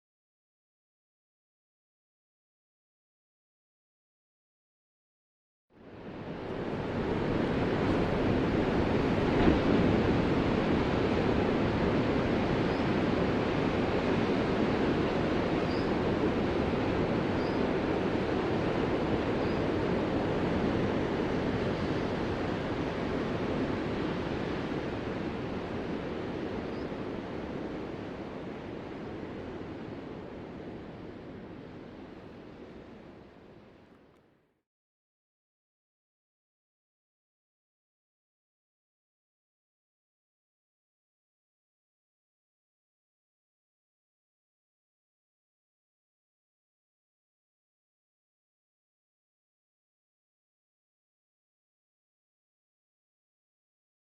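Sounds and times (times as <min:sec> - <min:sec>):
waves breaking: 0:06.3 - 0:32.2.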